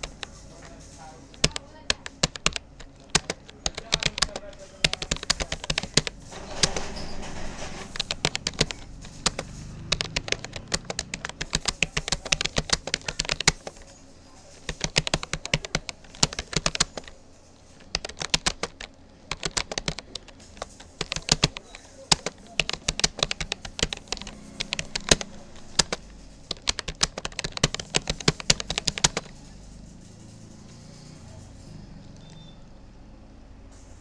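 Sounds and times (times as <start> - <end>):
computer keyboard key clicks: 0.0 - 6.8, 7.9 - 13.9, 14.6 - 17.1, 17.8 - 29.4.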